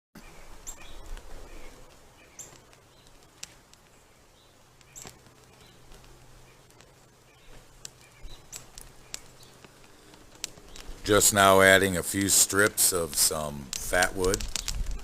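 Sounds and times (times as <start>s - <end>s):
small bird chirping: 0.2s - 11.1s
faint outdoor ambience: 0.2s - 15.0s
sharp clicks: 2.3s - 4.0s, 4.8s - 15.0s.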